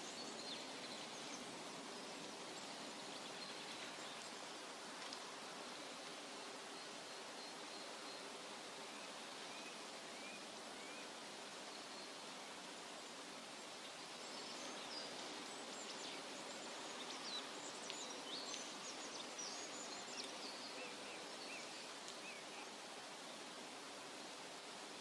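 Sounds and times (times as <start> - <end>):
forest ambience hiss: 0.0 - 25.0
small birds chirping: 13.9 - 23.4.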